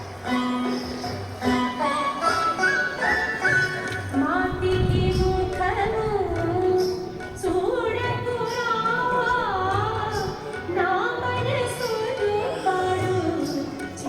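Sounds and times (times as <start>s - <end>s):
woman singing: 4.0s - 14.0s.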